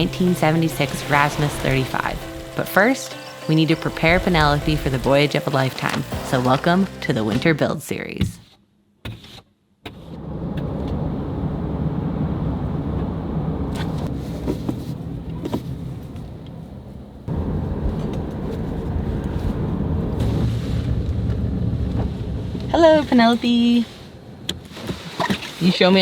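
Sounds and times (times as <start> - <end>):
car road and engine rumble: 9.9 - 26.0.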